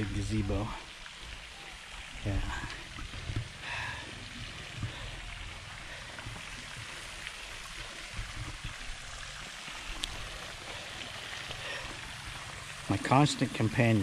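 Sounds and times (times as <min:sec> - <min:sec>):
fountain water spraying and splashing: 0:00.0 - 0:14.0
small tick: 0:10.0 - 0:10.2.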